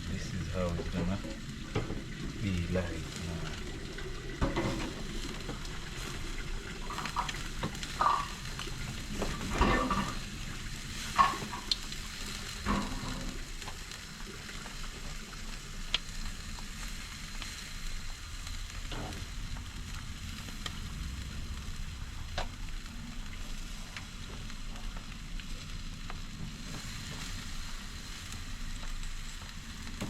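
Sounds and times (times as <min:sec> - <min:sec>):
meat sizzling on grill: 0:00.0 - 0:30.0
knocks and clatters: 0:03.5 - 0:10.3, 0:12.6 - 0:13.8.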